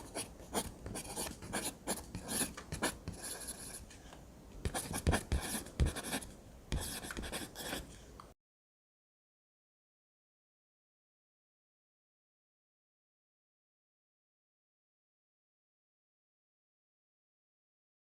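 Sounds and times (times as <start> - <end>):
drawing tool scratching on paper: 0.0 - 3.8, 4.7 - 7.9.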